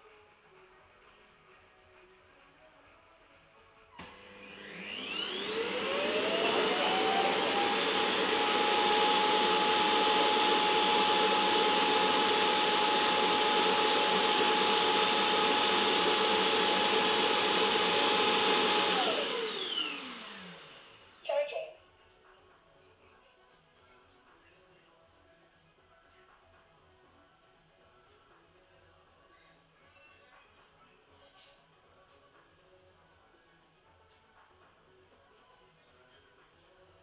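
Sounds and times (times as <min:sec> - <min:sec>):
robot vacuum motor whining: 0:04.0 - 0:20.8.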